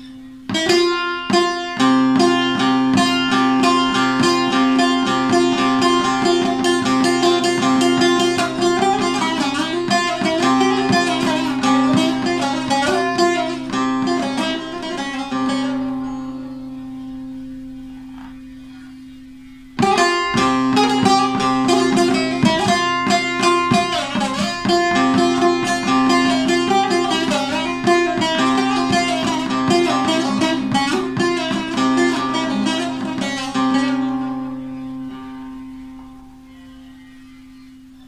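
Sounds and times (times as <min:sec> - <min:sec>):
plucked lute folk melody: 0:00.0 - 0:38.0.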